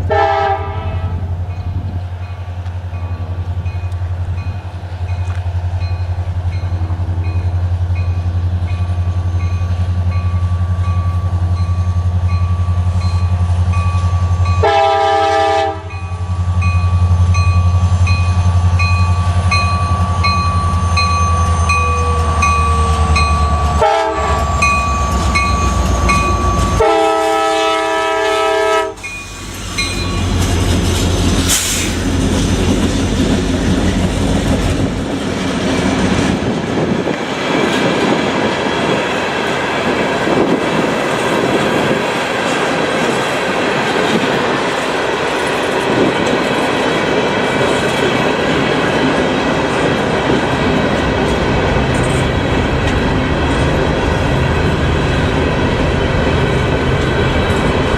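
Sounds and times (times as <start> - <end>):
train horn: 0.0 - 1.3, 14.6 - 16.0, 21.6 - 29.0
locomotive rumbling: 0.0 - 57.9
rail cars clattering: 0.0 - 57.9
crossing bell dinging: 0.4 - 30.6.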